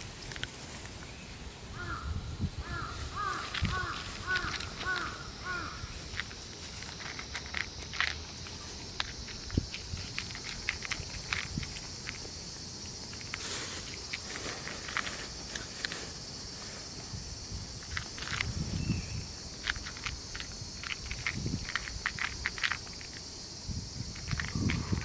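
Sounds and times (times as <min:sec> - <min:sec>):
high-pitched insect hiss: 0:00.0 - 0:25.0
light clicks and rustles: 0:03.3 - 0:05.2, 0:06.0 - 0:16.8, 0:17.8 - 0:23.3.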